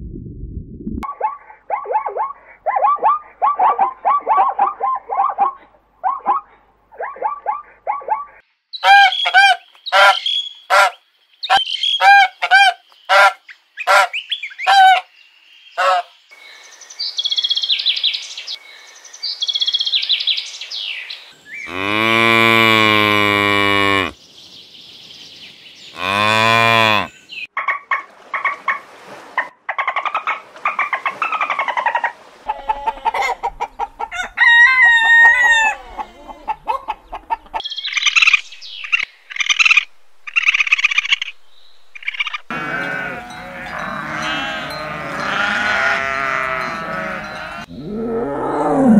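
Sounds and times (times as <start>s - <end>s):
cattle mooing: 21.7s - 24.2s, 26.0s - 27.1s, 42.5s - 48.9s
faint animal calls: 42.0s - 48.9s.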